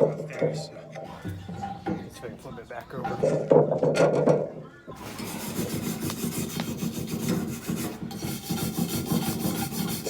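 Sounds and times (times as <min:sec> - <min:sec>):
wire brush scrubbing iron pan: 0:05.0 - 0:10.0.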